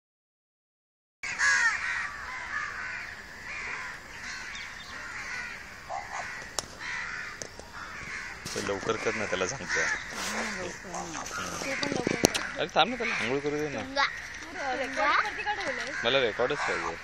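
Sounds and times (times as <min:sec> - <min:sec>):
bird calling: 0:01.2 - 0:17.0.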